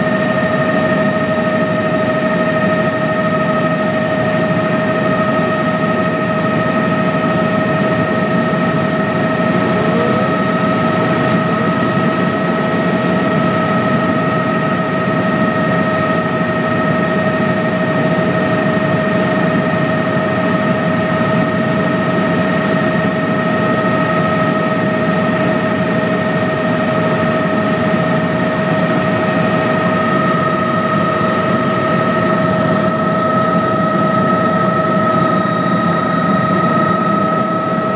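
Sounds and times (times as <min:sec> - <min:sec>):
helicopter engine and rotor: 0:00.0 - 0:37.9
high whine: 0:08.1 - 0:13.8.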